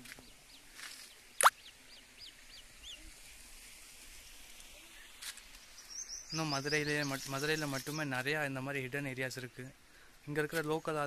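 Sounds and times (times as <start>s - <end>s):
faint outdoor hush: 0.0s - 11.0s
small bird chirping: 5.5s - 8.1s.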